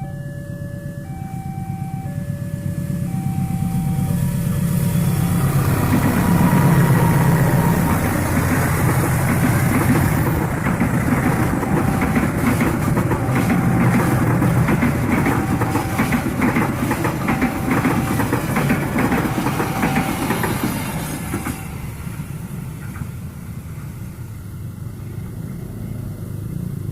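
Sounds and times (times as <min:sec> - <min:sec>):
locomotive engine: 0:00.0 - 0:26.9
train wheels clattering over rail joints: 0:05.4 - 0:21.8.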